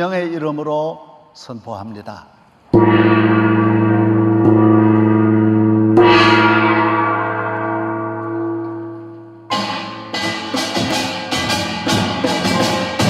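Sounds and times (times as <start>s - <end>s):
deep bell-like chord ringing: 2.8s - 13.0s.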